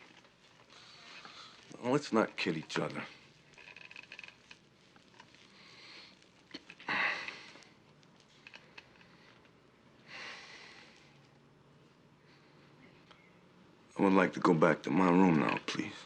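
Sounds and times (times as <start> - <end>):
person breathing softly: 8.8 - 11.2.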